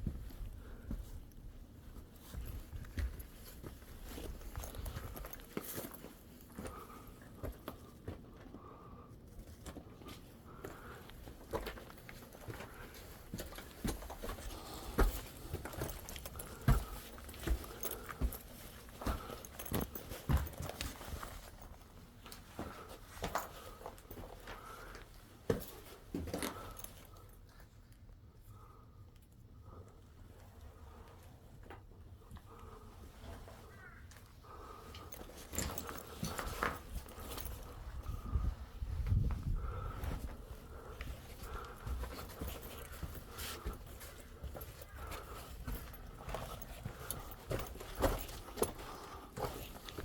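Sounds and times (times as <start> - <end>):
footsteps crunching on rocky trail: 1.8 - 27.1, 32.7 - 50.0
wind rumble on microphone: 37.8 - 40.1.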